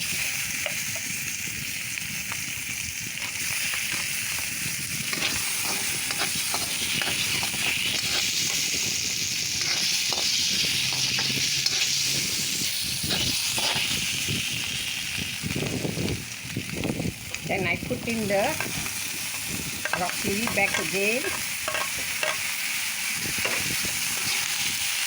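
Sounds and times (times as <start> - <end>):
mushrooms sizzling in hot oil: 0.0 - 25.0
spatula scraping a pan: 3.2 - 14.2, 18.4 - 22.5, 23.3 - 24.7.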